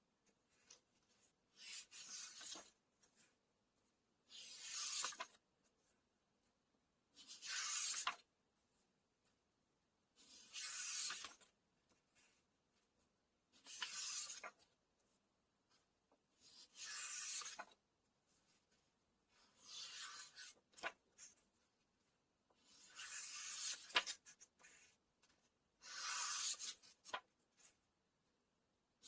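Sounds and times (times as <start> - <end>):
book pages turning: 0.5 - 3.3, 4.3 - 5.4, 7.2 - 8.3, 10.2 - 11.6, 13.6 - 14.7, 16.4 - 17.8, 19.4 - 21.4, 22.6 - 27.8.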